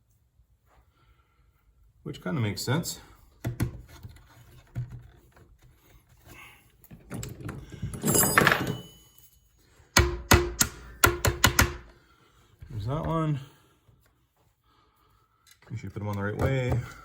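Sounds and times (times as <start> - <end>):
plastic clips knocking and clicking: 10.0 - 11.9.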